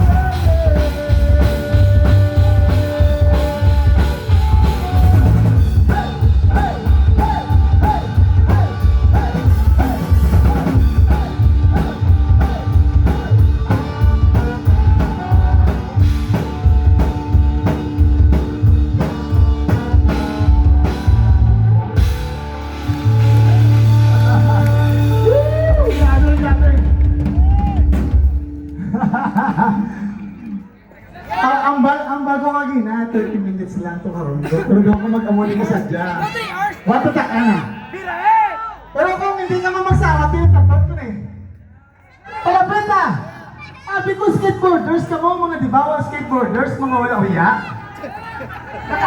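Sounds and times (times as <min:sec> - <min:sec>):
drum kit beat: 0:00.0 - 0:29.4
loud rock music: 0:00.0 - 0:29.6.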